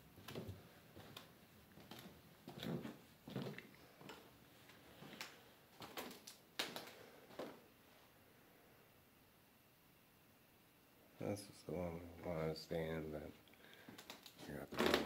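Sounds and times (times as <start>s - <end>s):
footsteps with light clicks: 0.2s - 7.6s, 13.3s - 15.0s.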